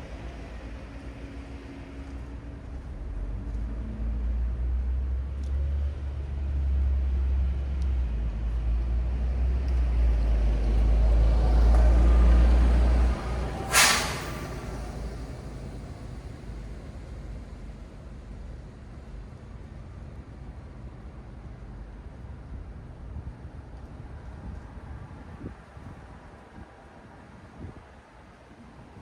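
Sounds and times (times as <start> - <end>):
heavy vehicle engine rumbling: 9.9 - 21.6
air brake hiss: 13.4 - 16.8.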